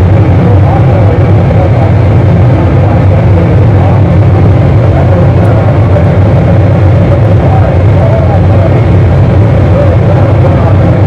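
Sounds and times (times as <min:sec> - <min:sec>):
distorted noise music: 0:00.0 - 0:11.0.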